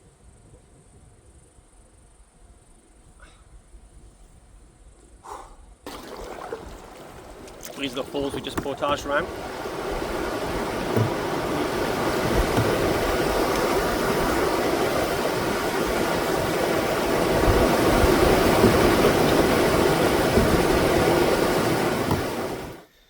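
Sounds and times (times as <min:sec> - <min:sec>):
waterfall roaring: 0:05.9 - 0:22.8.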